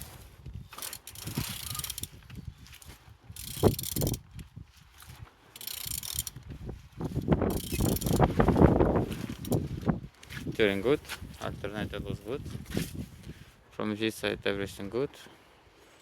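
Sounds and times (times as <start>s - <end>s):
engine turned over by hand: 0.7s - 2.2s, 7.5s - 8.4s
mechanical clicking and scraping: 0.7s - 4.2s, 5.6s - 6.5s, 7.1s - 8.4s.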